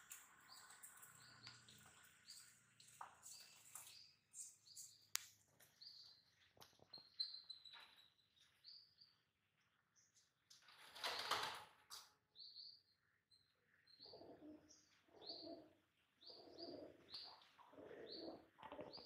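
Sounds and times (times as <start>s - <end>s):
small birds chirping: 0.0s - 19.0s
pigeon wing flaps: 10.8s - 11.8s.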